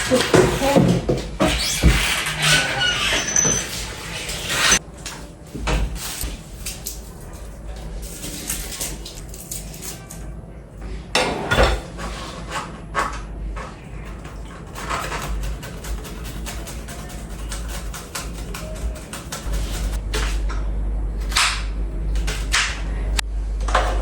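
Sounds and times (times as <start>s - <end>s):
dishes and utensils clattering: 11.1s - 20.3s.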